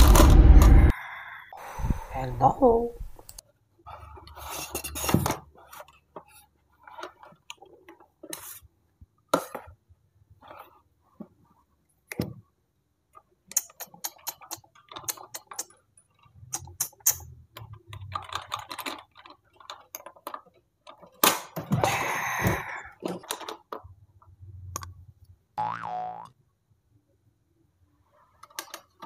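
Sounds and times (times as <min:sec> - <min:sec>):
plastic toys clicking and knocking: 0:13.1 - 0:24.1, 0:28.4 - 0:29.0.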